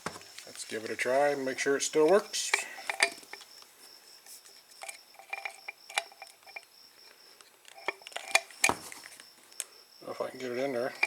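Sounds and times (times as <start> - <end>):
small metallic clicks and clinks: 1.6 - 3.6, 4.7 - 6.7, 7.4 - 8.8.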